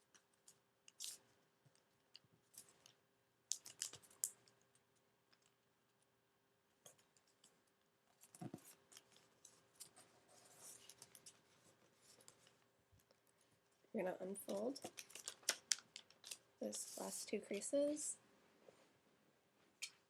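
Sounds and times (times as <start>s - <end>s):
paper crinkling and rustling: 14.4s - 17.7s.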